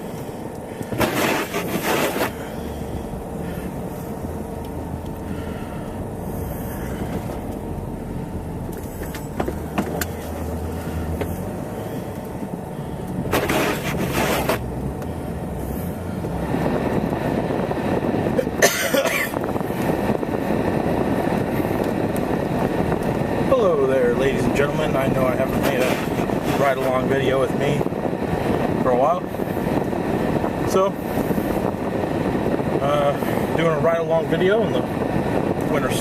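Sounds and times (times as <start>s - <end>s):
car engine hum: 0.0s - 36.0s.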